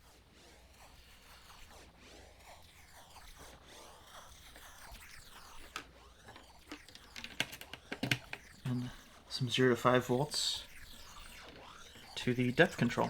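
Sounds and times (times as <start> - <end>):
warbling electronic feedback noise: 4.9 - 13.0
sharp clicks: 6.7 - 8.9.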